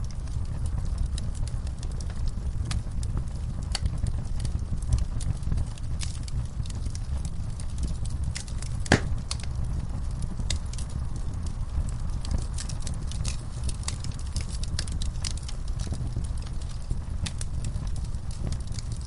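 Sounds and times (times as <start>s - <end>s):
fire crackles and pops: 0.0s - 19.0s
fire flames rumbling: 0.0s - 19.0s.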